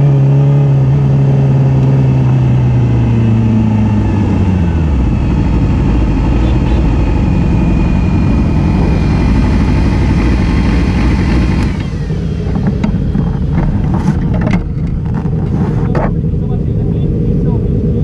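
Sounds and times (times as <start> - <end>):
motorcycle engine running: 0.0 - 18.0
sharp clicks or knocks: 12.4 - 16.2.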